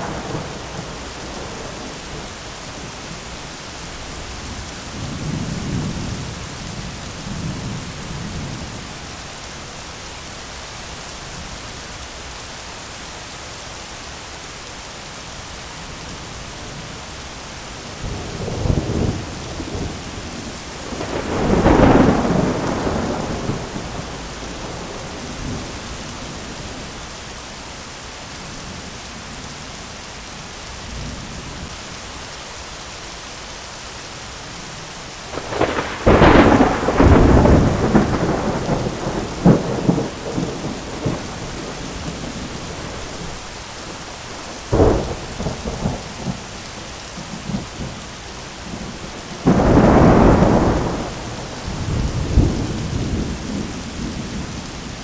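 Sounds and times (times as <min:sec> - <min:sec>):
distant thunder rumbling: 0:00.0 - 0:03.3, 0:17.9 - 0:27.0, 0:35.3 - 0:55.0
heavy rain hiss: 0:00.0 - 0:55.0
loud peal of thunder: 0:18.2 - 0:26.0, 0:35.4 - 0:43.3, 0:48.7 - 0:54.8.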